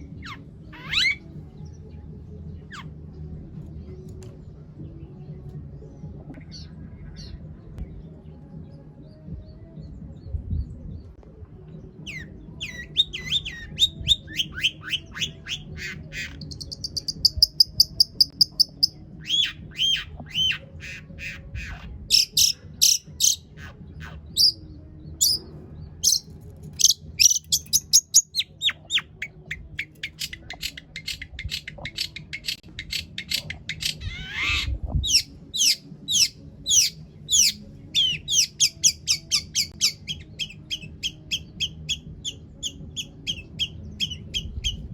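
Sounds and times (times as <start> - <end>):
bird trill: 0.0 - 1.4, 12.0 - 24.6, 25.2 - 25.4, 26.0 - 44.8
bird singing varied song: 0.0 - 44.9.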